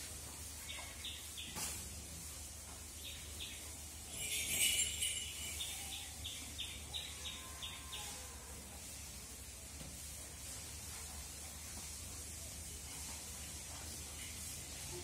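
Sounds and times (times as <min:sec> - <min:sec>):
small birds chirping: 0:00.4 - 0:01.9, 0:02.7 - 0:08.2.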